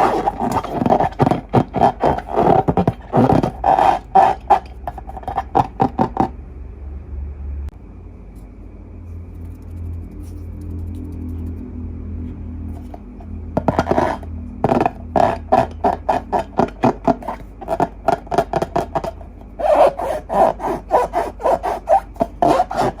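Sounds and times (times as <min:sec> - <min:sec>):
slime squishing by hand: 0:00.0 - 0:06.3.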